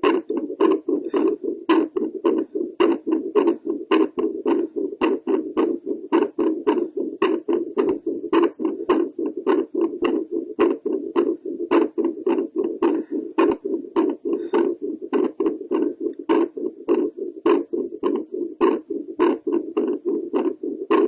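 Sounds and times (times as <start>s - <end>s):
fast heartbeat clicks: 0.0s - 21.0s.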